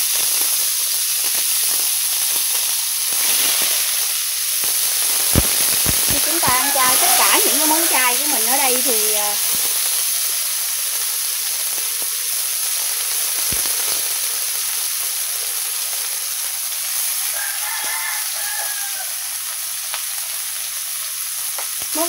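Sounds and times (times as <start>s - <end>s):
mushrooms sizzling in oil: 0.0s - 22.0s
rooster crowing: 6.1s - 9.0s, 17.1s - 19.4s.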